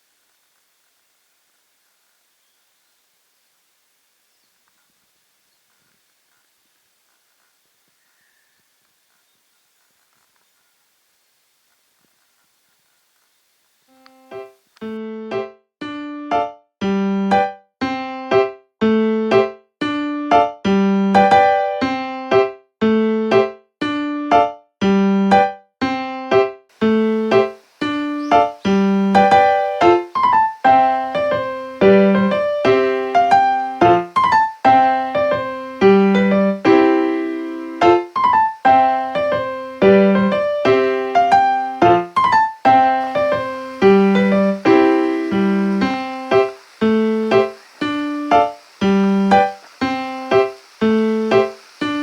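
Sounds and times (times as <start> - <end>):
piano music: 26.8 - 52.0.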